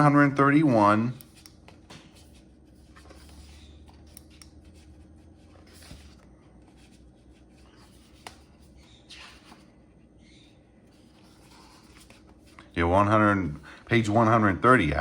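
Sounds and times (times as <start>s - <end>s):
book pages rustling: 1.3s - 12.7s.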